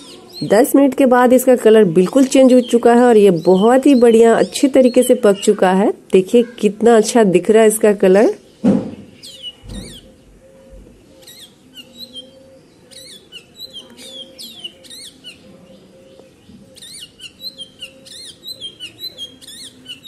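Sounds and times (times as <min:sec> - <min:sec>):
bird chirping: 0:00.0 - 0:20.0
low thud: 0:08.6 - 0:10.1.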